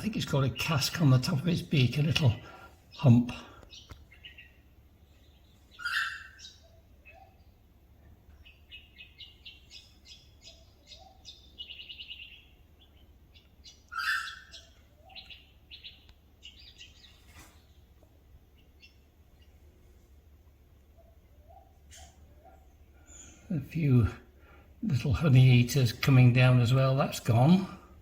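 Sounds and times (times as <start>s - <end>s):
bird trill: 0.0s - 7.7s, 8.3s - 17.9s, 20.9s - 23.9s
high bird chirping: 0.0s - 19.7s, 20.8s - 24.1s
harsh bird calls: 0.0s - 28.0s.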